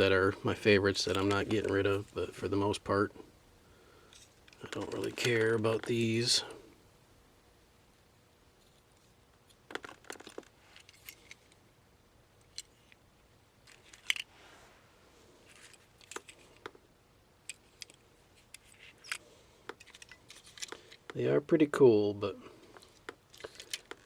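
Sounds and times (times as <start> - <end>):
toy cars clicking and clacking: 22.8 - 24.0.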